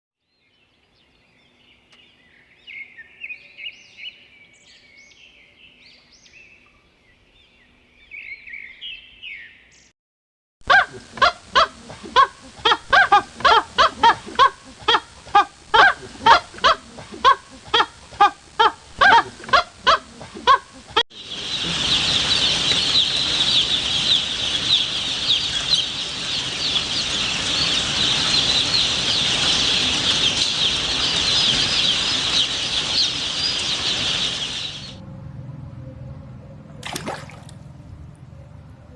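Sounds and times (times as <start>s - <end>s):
chorus of high-pitched chirps: 21.2s - 35.0s.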